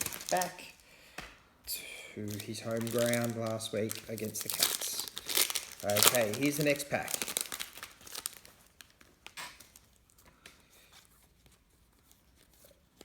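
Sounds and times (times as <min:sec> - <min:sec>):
card pack wrapper tearing and crinkling: 0:00.0 - 0:00.8, 0:02.2 - 0:10.3.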